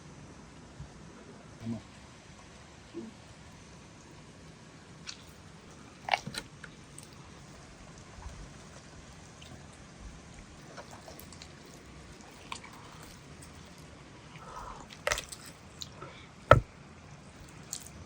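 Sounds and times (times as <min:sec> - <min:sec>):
crunch of biting fried chicken: 0:14.8 - 0:16.6.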